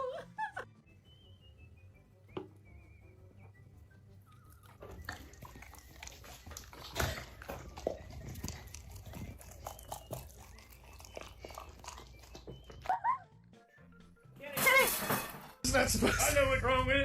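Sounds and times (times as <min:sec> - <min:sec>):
dog chewing on a toy: 0:04.3 - 0:12.9.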